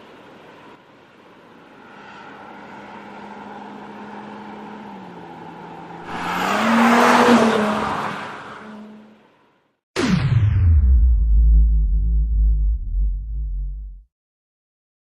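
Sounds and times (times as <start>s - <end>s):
car passing by: 1.6s - 9.4s.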